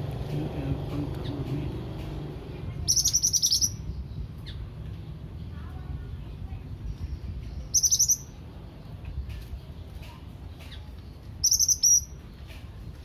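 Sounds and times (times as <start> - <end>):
songbird rapid high chirping: 2.6 - 4.7, 6.7 - 9.0, 9.8 - 12.5.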